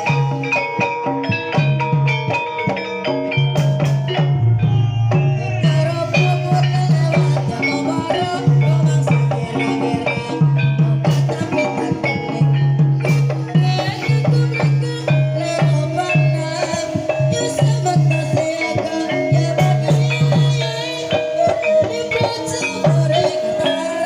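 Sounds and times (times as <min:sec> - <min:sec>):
drums: 0:00.0 - 0:24.0
pitched metal percussion: 0:00.0 - 0:24.0
repeating low note: 0:04.2 - 0:07.4.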